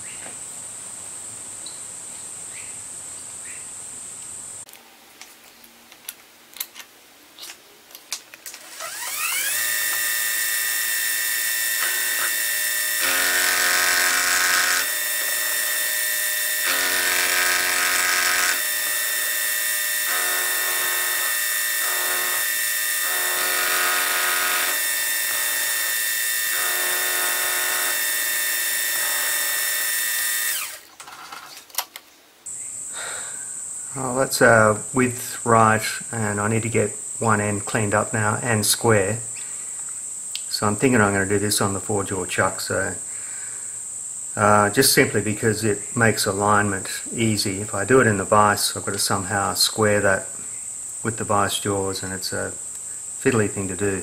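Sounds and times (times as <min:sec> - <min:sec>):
end mill cutting metal: 0:08.6 - 0:30.8
milling machine spindle whine: 0:08.6 - 0:30.8.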